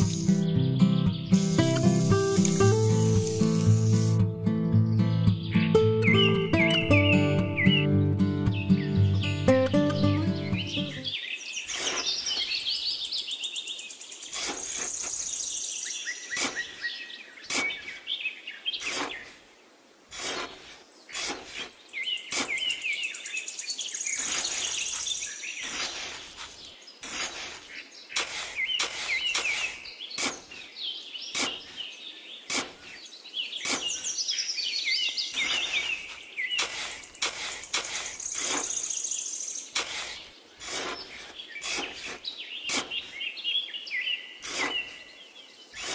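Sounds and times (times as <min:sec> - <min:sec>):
metal trowel scraping sand: 0:00.0 - 0:00.4, 0:01.3 - 0:04.2, 0:11.7 - 0:12.8, 0:14.3 - 0:15.4, 0:16.3 - 0:16.8, 0:17.5 - 0:18.0, 0:18.8 - 0:19.4, 0:20.1 - 0:22.8, 0:24.2 - 0:30.7, 0:31.3 - 0:31.9, 0:32.5 - 0:34.2, 0:35.3 - 0:39.0, 0:39.7 - 0:43.2, 0:44.4 - 0:45.1
birds chirping: 0:00.0 - 0:19.8, 0:20.4 - 0:45.9.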